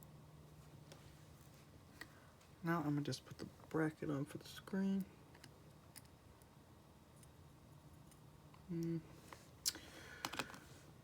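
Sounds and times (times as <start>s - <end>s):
person humming: 8.7s - 9.2s.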